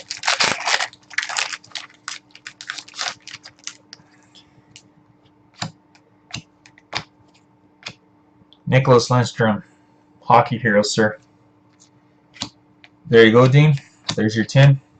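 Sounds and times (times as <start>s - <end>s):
foil pack tearing and crinkling: 0.0s - 3.9s.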